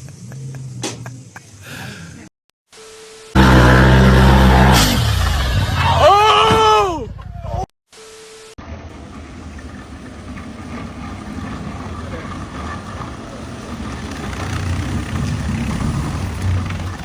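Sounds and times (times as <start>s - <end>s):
vehicle engine running: 0.0s - 1.5s, 8.7s - 17.0s.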